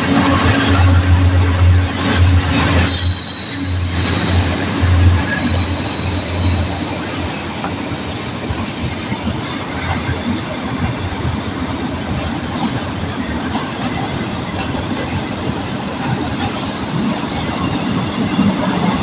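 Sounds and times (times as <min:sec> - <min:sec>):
locomotive engine humming: 0:00.0 - 0:16.9
high wheel squeal: 0:02.6 - 0:07.8.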